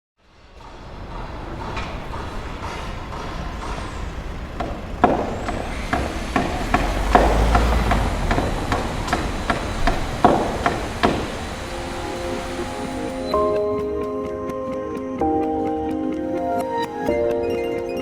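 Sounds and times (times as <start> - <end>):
sharp knocks and clanks: 0.3 - 13.5
machinery engine rumble: 0.3 - 13.7.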